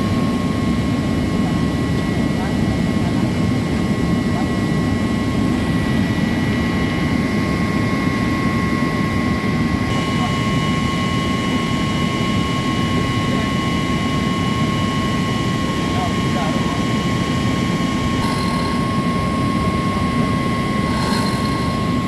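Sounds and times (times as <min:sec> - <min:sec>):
high-pitched whine: 0:09.9 - 0:22.0
machinery drone: 0:09.9 - 0:22.0.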